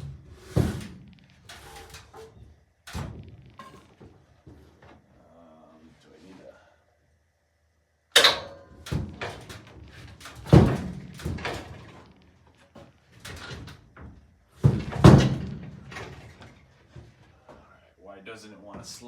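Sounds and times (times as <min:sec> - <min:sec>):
board knocking and thudding: 0:09.0 - 0:12.1, 0:14.0 - 0:17.2.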